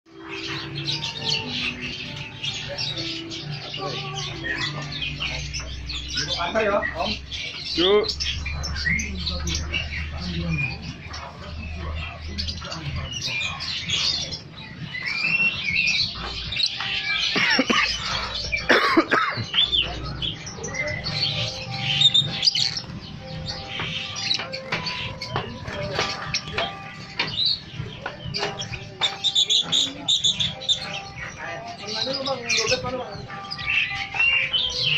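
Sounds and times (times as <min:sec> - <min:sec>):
caged songbirds singing: 0:00.0 - 0:34.9.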